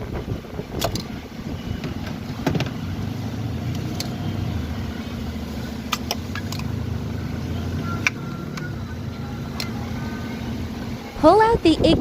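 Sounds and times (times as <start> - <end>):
engine humming: 0.0 - 12.0
connector clips clicking: 5.9 - 6.7.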